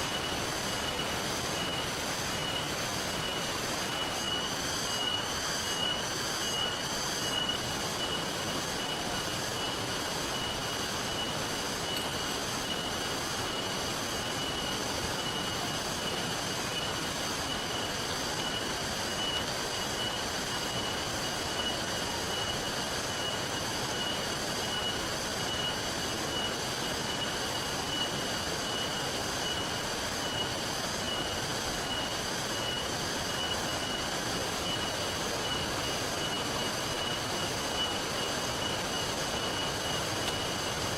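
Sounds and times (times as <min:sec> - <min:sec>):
river water rushing: 0:00.0 - 0:22.3
high-pitched whine: 0:00.0 - 0:40.9
steady rain: 0:00.0 - 0:40.9.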